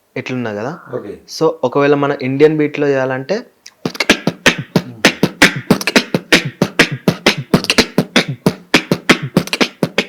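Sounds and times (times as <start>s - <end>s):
person beatboxing: 3.7s - 10.0s.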